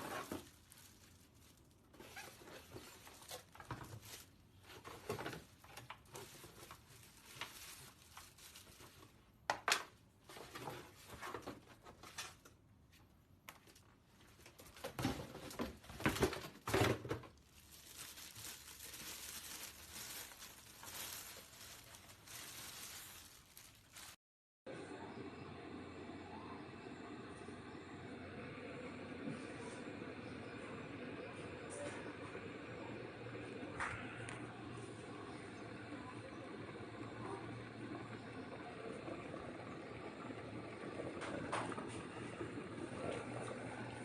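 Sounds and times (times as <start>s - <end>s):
packaging rustling and tearing: 0.0s - 9.4s, 13.6s - 24.2s.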